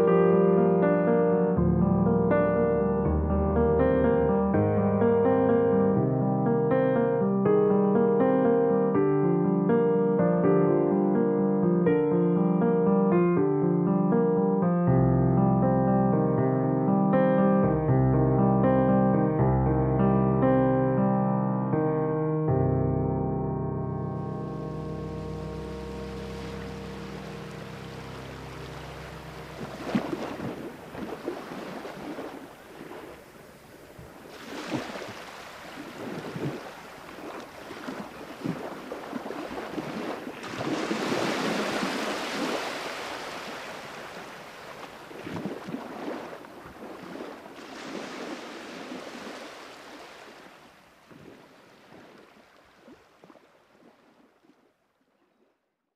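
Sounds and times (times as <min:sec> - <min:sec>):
music: 0:00.0 - 0:30.2
sea waves washing: 0:24.2 - 0:54.3.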